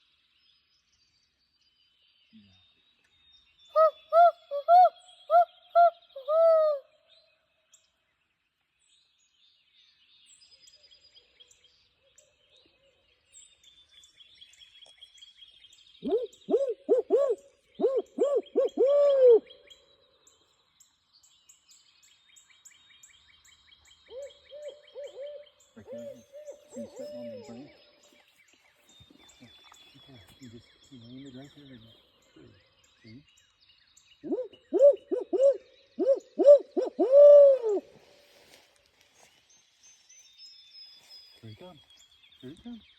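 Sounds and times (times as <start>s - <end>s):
small birds chirping: 0.0s - 37.0s, 37.8s - 42.9s
owl hooting: 3.8s - 6.9s, 16.0s - 19.7s, 24.1s - 27.8s, 34.2s - 38.0s.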